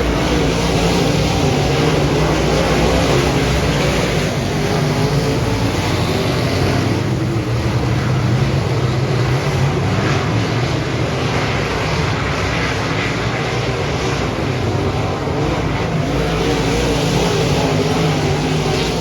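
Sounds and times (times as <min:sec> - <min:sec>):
race car engine at speed: 0:00.0 - 0:19.0.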